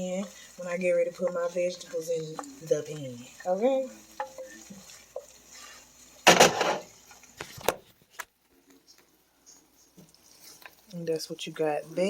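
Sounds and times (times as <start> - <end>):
cookware scraping clunk: 6.3 - 6.9.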